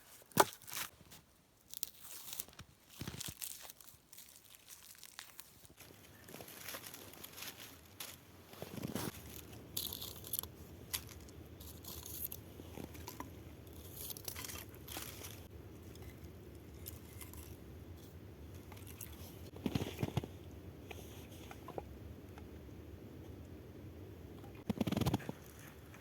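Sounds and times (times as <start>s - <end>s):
dry wood snapping and crunching: 1.7s - 16.1s.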